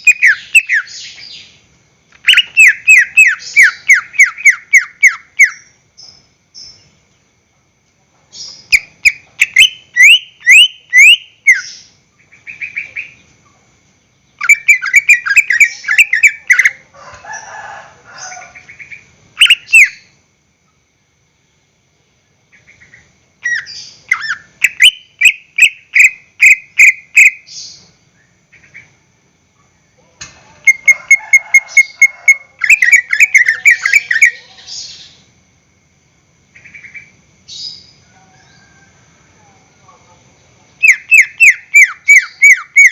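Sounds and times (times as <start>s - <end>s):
bird chattering: 0.0s - 1.5s, 2.2s - 5.8s, 8.4s - 13.6s, 14.3s - 16.9s, 18.2s - 20.1s, 22.5s - 27.8s, 30.6s - 35.1s, 40.8s - 42.9s
bird singing whistled notes: 0.0s - 1.6s, 2.2s - 6.9s, 8.4s - 13.3s, 14.3s - 16.8s, 18.8s - 20.2s, 22.8s - 28.9s.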